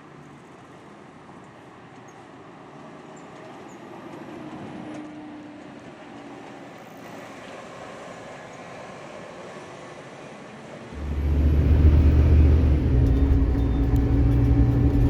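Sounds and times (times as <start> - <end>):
bus road and engine noise: 0.0 - 15.0.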